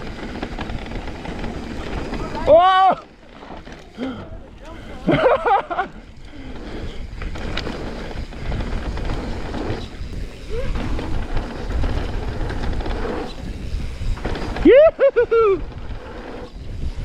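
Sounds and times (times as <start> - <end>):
bike tyres rattling on dirt trail: 0.0 - 17.0
wind buffeting microphone: 4.2 - 17.0.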